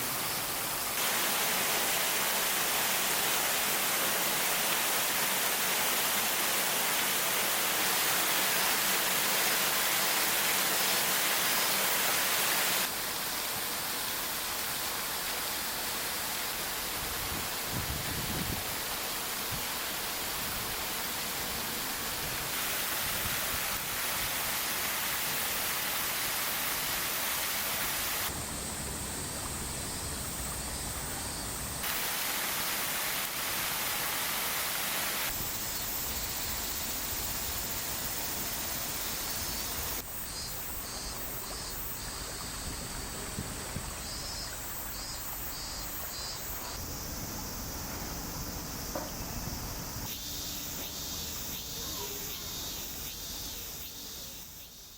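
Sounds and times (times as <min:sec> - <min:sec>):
waterfall rushing: 0:00.0 - 0:13.1, 0:18.7 - 0:30.3, 0:31.8 - 0:35.4.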